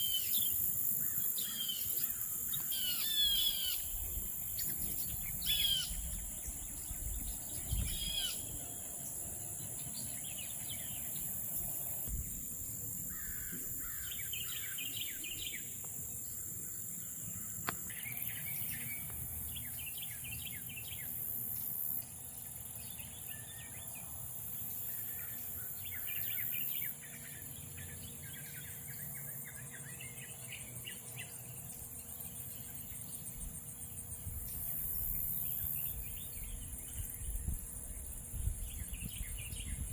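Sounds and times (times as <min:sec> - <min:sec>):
birds chirping: 0:00.0 - 0:21.2
high-pitched insect drone: 0:00.0 - 0:39.9.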